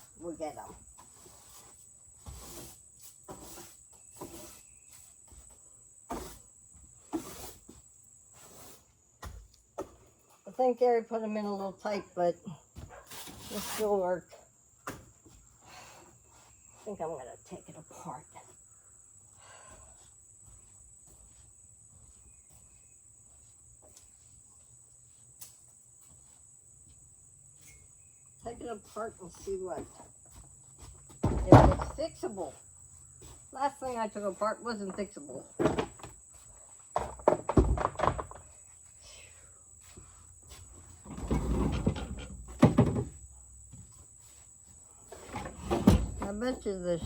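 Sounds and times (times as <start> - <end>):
crickets trilling: 24.4 - 47.0.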